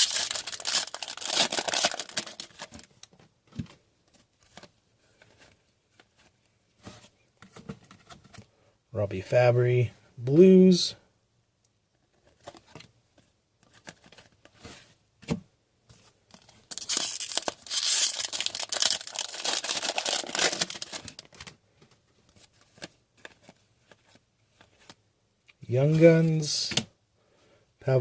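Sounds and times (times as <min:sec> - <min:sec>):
foil card pack tearing and crinkling: 0:00.0 - 0:02.9, 0:16.7 - 0:21.5.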